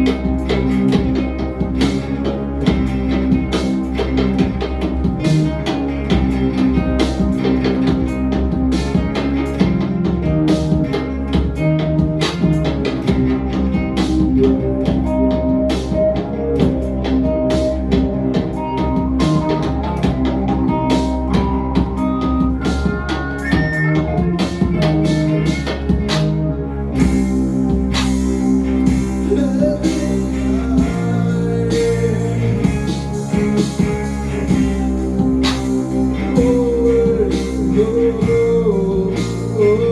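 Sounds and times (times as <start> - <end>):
instrumental guitar band music: 0.0 - 39.9
low bass notes: 0.0 - 39.9
person singing: 14.3 - 26.2, 29.1 - 34.8, 36.1 - 39.9.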